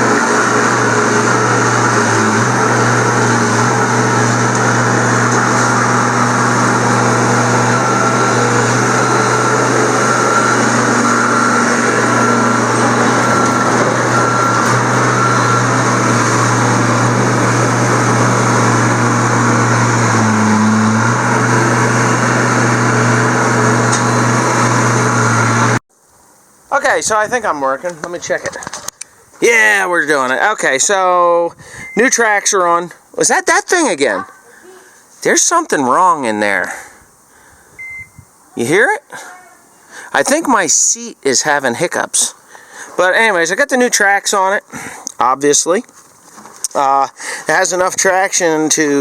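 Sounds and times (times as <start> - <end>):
diesel engine running: 0.0 - 25.8, 31.6 - 32.4.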